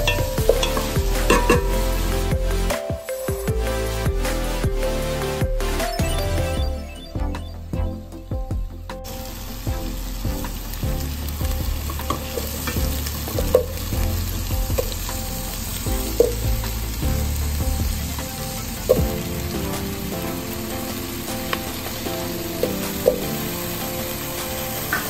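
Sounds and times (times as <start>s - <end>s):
vegetables sizzling in a pot: 0.0s - 2.7s, 9.1s - 25.0s
sharp knocks against pot: 0.1s - 1.8s.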